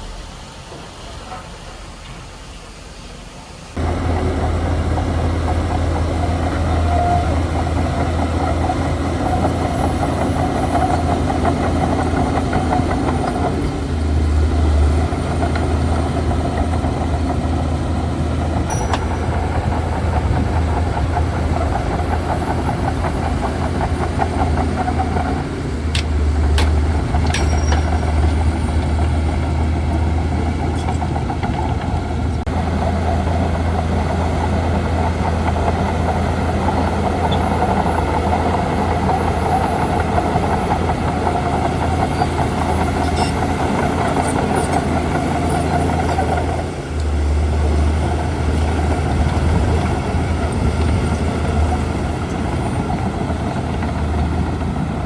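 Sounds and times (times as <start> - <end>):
bulldozer diesel engine running: 3.8 - 55.0
sharp metal clanks: 18.7 - 19.8, 26.6 - 28.4.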